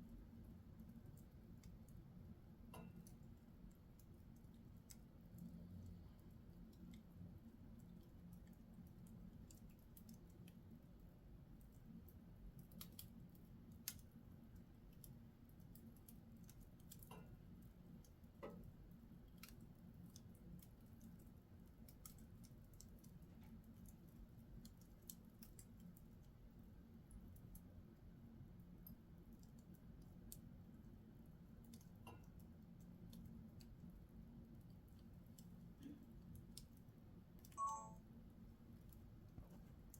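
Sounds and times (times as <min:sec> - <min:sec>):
wood fire crackling: 0:00.0 - 0:37.6.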